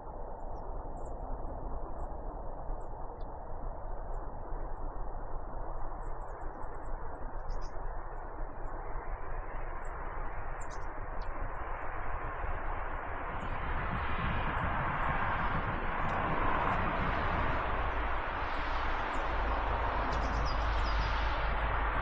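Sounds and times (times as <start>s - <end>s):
steady rushing noise: 12.1s - 22.0s.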